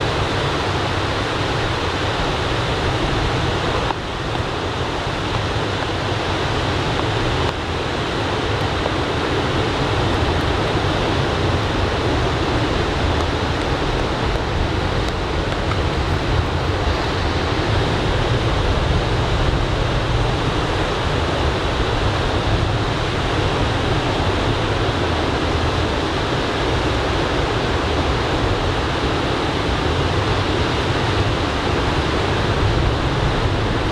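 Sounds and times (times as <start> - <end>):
ocean surf breaking on beach: 0.0 - 19.5
wind on microphone: 0.0 - 33.9.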